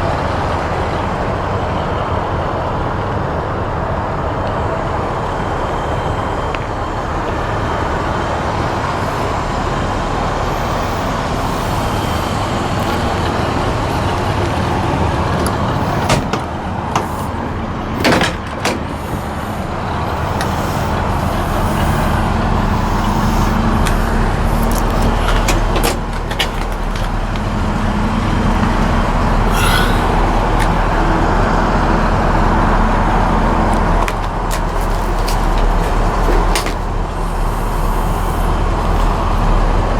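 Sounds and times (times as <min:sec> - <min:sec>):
pickup engine running: 0:00.0 - 0:39.9
road noise: 0:00.0 - 0:39.9
sharp clicks or knocks: 0:15.4 - 0:17.4.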